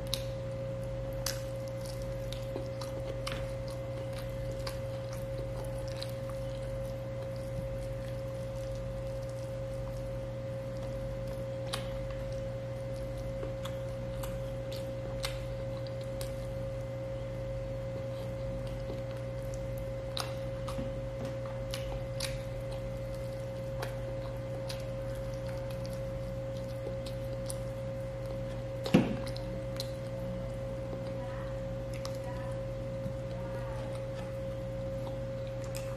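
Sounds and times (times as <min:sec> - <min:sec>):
person chewing food: 0:00.0 - 0:35.9
steady electrical hum: 0:00.0 - 0:35.9.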